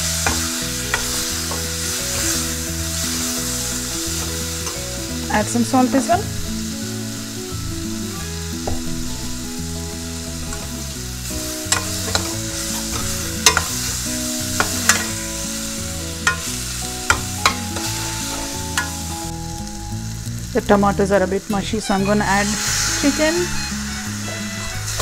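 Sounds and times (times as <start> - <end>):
vegetables sizzling in oil: 0.0 - 25.0
metal spoon clanking on pan: 0.1 - 2.5, 11.4 - 15.3, 16.2 - 19.0.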